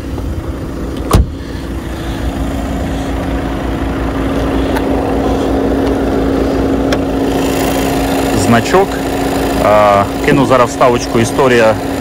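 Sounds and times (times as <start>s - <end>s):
car engine idling: 0.0s - 12.0s
car door shutting: 1.0s - 1.4s.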